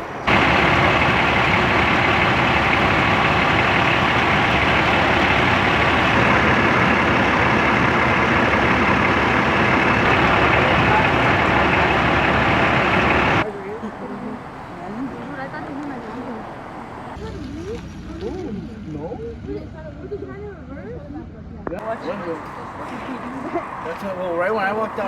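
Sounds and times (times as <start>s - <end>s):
large vehicle engine running: 0.0s - 16.4s.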